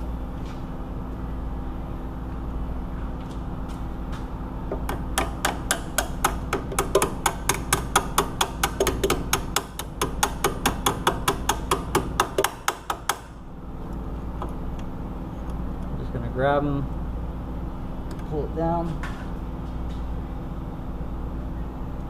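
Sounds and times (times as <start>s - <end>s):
hand tool clicking on metal: 4.8s - 13.2s.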